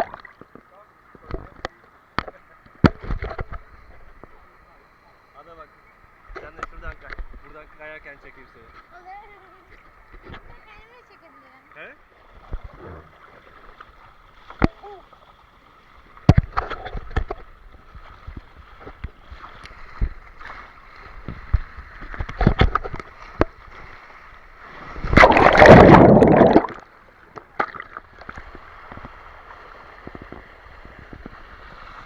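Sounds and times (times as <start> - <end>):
water sloshing and gurgling: 0.0 - 4.4, 12.0 - 32.0
loud rushing splash: 25.0 - 26.8.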